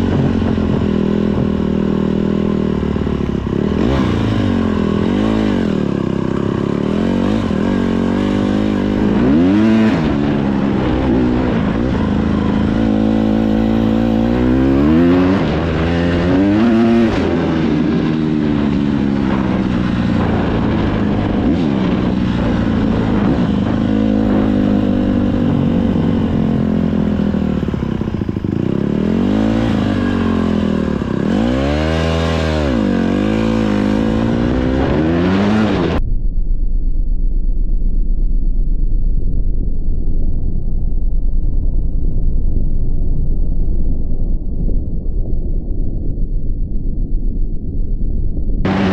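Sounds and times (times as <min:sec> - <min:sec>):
dirt bike engine revving: 0:00.0 - 0:36.0, 0:48.7 - 0:48.9.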